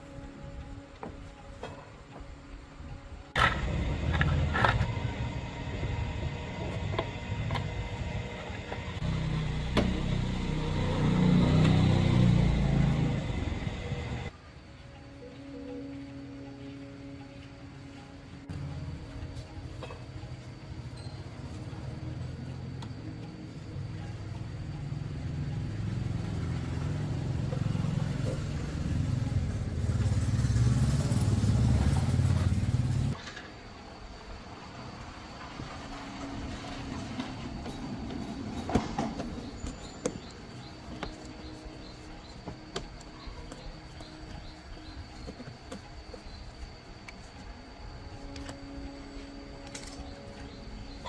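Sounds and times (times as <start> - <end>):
small engine running unevenly: 3.4 - 14.3, 24.0 - 33.2.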